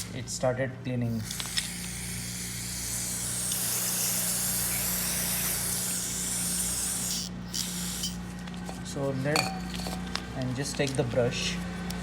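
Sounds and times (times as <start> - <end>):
aerosol spray hissing: 1.6 - 8.2.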